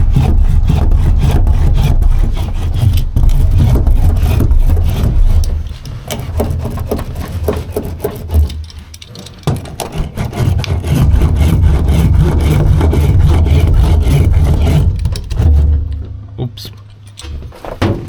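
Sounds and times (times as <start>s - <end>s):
sheet rubbing and scraping on metal: 0.0s - 15.9s
heavy low rumble: 10.8s - 16.6s.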